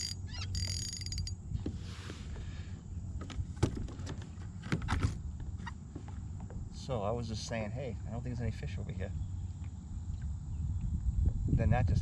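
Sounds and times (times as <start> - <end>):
fishing reel whirring: 0.0 - 1.4.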